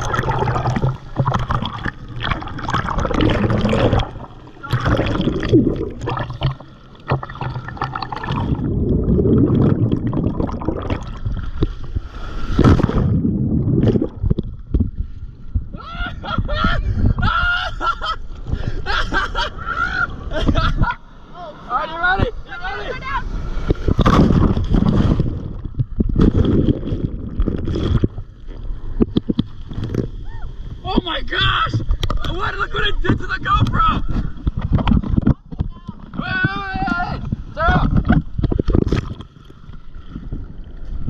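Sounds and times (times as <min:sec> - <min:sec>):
surf surging and splashing: 0:00.0 - 0:14.3, 0:18.8 - 0:41.0
underwater gurgling: 0:00.0 - 0:15.8, 0:22.1 - 0:30.9, 0:33.0 - 0:41.0.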